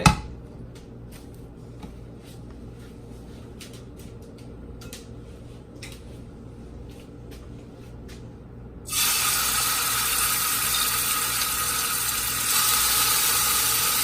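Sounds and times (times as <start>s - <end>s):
steady low hum: 0.0s - 14.0s
chicken frying in oil: 8.9s - 14.0s.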